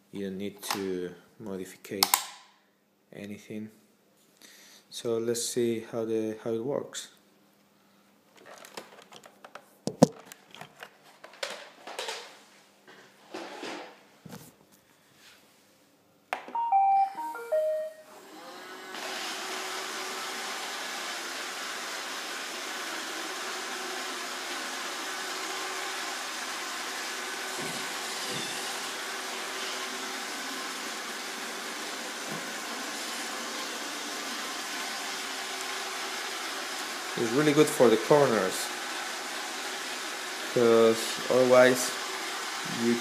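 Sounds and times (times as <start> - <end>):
robot vacuum start-up beeps: 16.6 - 18.2
robot vacuum motor humming: 18.1 - 43.0.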